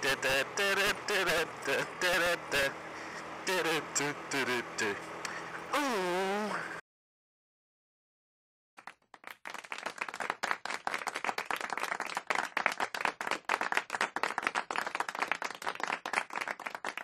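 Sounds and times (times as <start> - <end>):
many hands clapping: 8.8 - 17.0.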